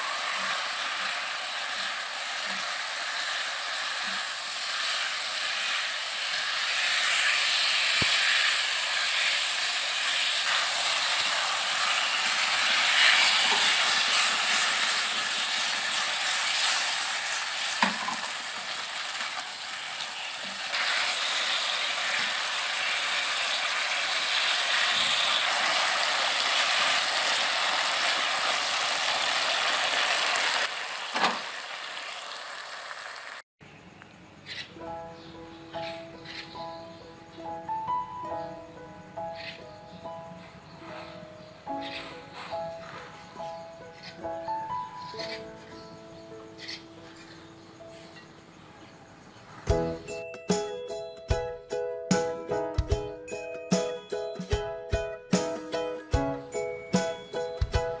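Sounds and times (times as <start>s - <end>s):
meat and tomatoes sizzling in a pan: 0.0s - 33.4s.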